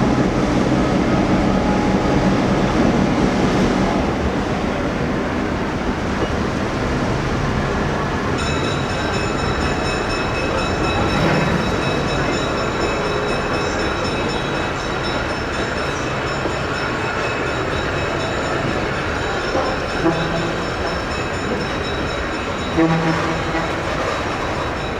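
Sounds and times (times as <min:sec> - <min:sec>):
train cars rumbling on track: 0:00.0 - 0:24.9.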